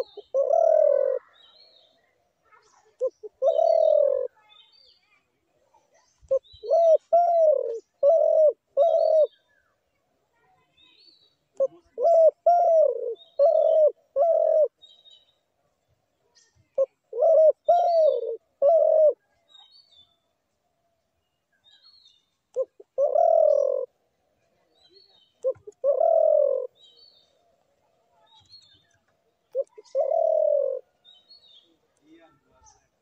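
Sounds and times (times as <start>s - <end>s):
dove cooing: 0.0s - 1.4s, 2.8s - 4.4s, 6.3s - 9.4s, 11.6s - 14.8s, 16.7s - 19.3s, 22.5s - 24.1s, 25.4s - 26.8s, 29.4s - 31.0s
small birds chirping: 0.0s - 33.0s.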